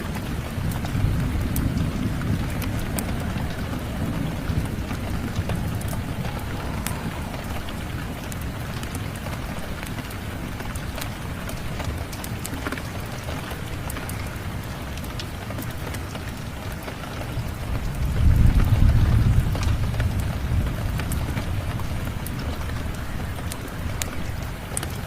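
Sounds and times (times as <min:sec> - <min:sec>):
low rumble of thunder: 0:00.0 - 0:14.9, 0:16.4 - 0:25.0
fireplace crackles: 0:00.0 - 0:16.4
steady rain: 0:00.0 - 0:25.0.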